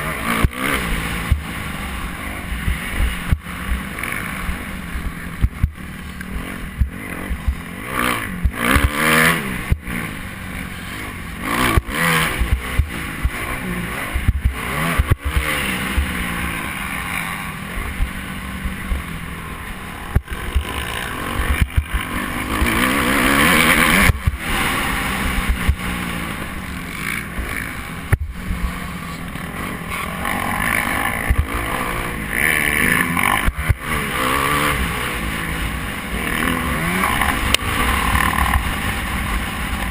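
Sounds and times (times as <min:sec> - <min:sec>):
motocross bike engines revving: 0:00.0 - 0:39.9.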